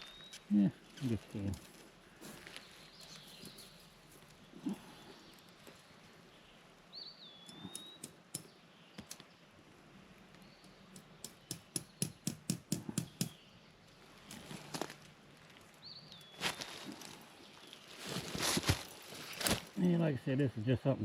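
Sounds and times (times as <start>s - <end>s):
sharp taps on barbed wire: 7.4s - 9.2s, 10.6s - 13.4s.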